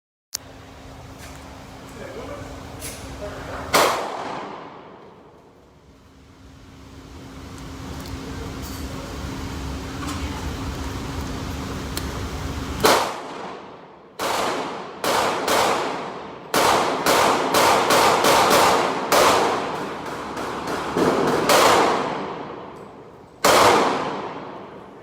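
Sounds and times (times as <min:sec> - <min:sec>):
steady hum: 0:00.4 - 0:25.0
gunshots with ringing decay: 0:03.7 - 0:05.0, 0:12.8 - 0:22.7, 0:23.4 - 0:24.8.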